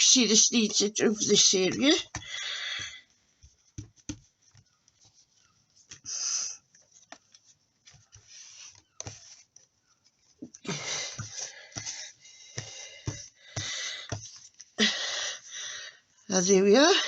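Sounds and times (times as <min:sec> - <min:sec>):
handling taps and knocks: 0:00.6 - 0:05.2, 0:10.5 - 0:14.6.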